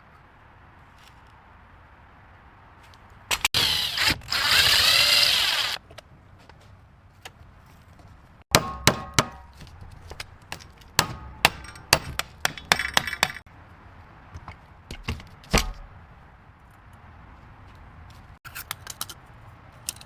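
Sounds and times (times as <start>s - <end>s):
metal clanks and knocks: 11.0s - 13.4s.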